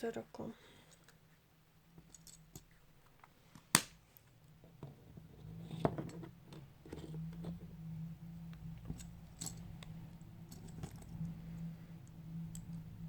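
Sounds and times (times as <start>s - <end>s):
plastic toy snapping: 3.7s - 4.0s.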